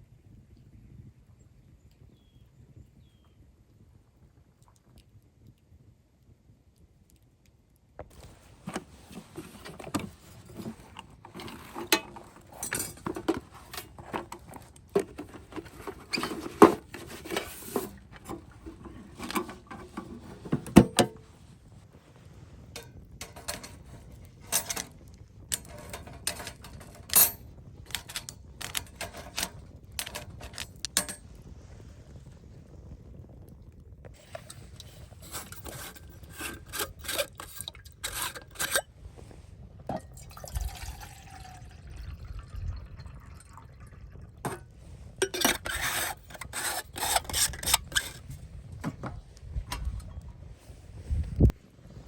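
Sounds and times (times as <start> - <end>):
camp gear clinking and knocking: 8.1 - 21.4, 22.7 - 31.4, 34.1 - 38.9, 39.9 - 41.3, 44.4 - 44.6, 45.2 - 50.3.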